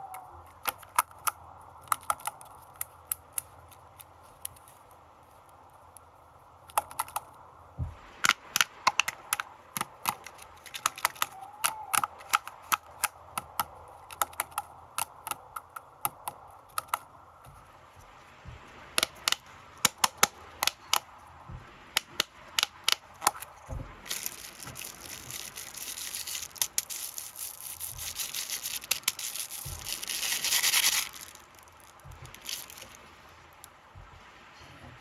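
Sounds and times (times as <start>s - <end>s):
plastic packaging crackling: 10.0s - 11.4s, 23.1s - 33.7s
plastic packaging crinkling: 24.0s - 33.6s.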